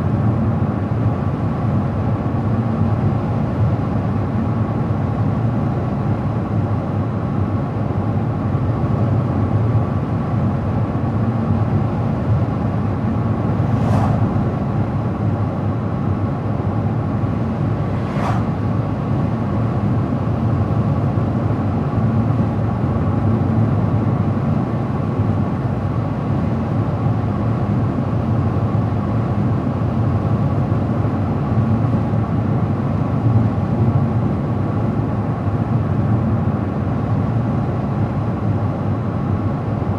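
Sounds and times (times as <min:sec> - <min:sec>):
car tyre and engine noise: 0:12.6 - 0:23.5.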